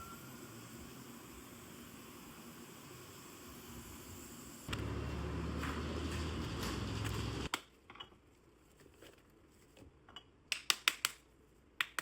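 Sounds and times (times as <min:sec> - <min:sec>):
sharp clicks and taps: 0:11.8 - 0:12.0.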